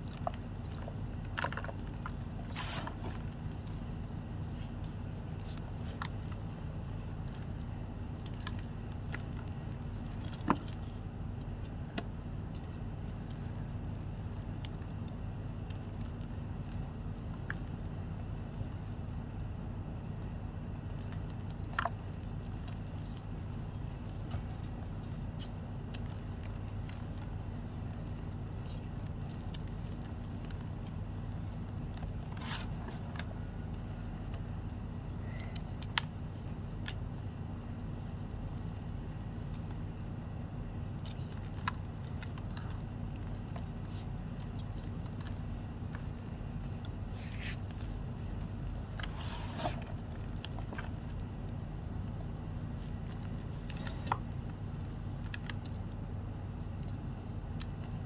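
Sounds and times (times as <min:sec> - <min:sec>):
steady low hum: 0:00.0 - 0:58.0
steady low rumble: 0:00.0 - 0:58.0
chalk crunching: 0:24.0 - 0:35.4.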